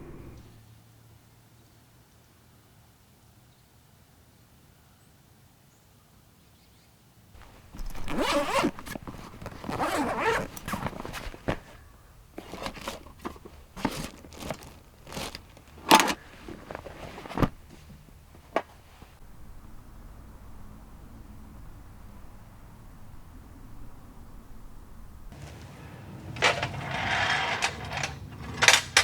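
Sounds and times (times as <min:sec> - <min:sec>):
zipper pulled: 0:00.0 - 0:00.5, 0:07.4 - 0:19.2.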